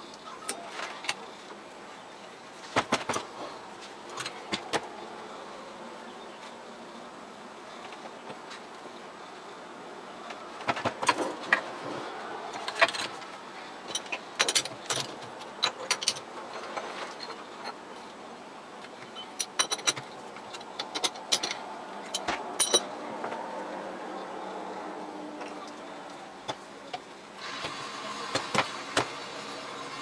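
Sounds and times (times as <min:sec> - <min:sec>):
metallic clinks and rattles: 0:12.6 - 0:17.8, 0:19.1 - 0:22.9.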